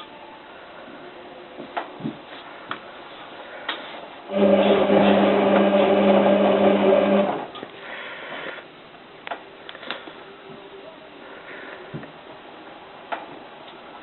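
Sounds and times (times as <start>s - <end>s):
washing machine motor whirring: 4.3s - 7.6s.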